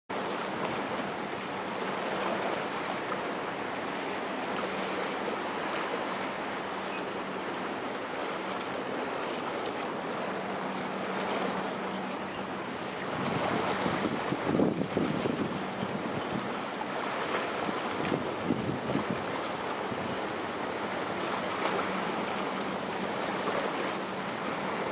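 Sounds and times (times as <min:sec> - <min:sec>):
rushing water of boat wake: 0:00.1 - 0:24.9
wind buffeting microphone: 0:13.0 - 0:20.3.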